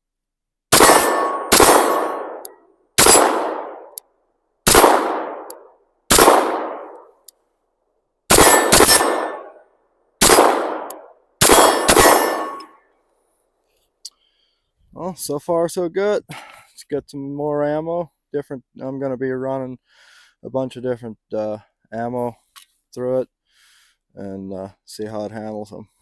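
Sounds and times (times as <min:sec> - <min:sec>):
pistol shots echoing: 0:00.7 - 0:04.0, 0:04.7 - 0:07.0, 0:08.3 - 0:09.6, 0:10.2 - 0:12.7.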